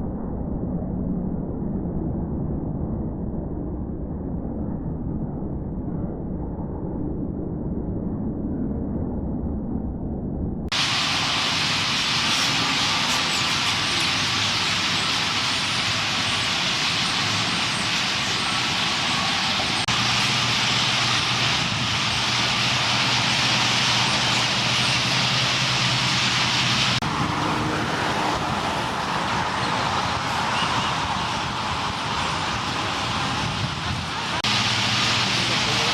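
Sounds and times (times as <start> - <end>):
flock of birds chattering: 10.7 - 35.9
steady low hum: 10.7 - 35.9.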